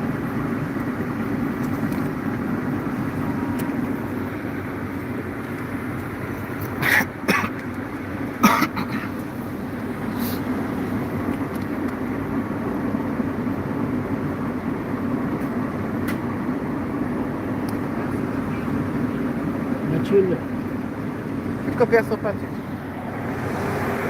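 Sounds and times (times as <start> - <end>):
car engine and tyres: 0.0 - 24.0.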